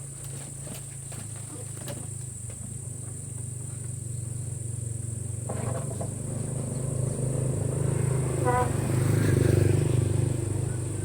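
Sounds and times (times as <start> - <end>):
insects buzzing: 0.0 - 11.0
low motor hum: 0.0 - 11.0
higher engine tone: 2.4 - 11.0.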